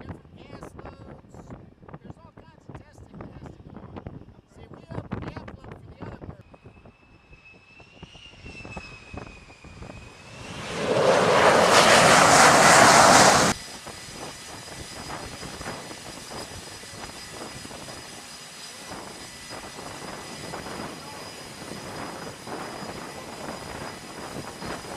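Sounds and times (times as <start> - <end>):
jet engine whine: 6.4 - 24.9
jet engine loud rush: 6.8 - 14.2.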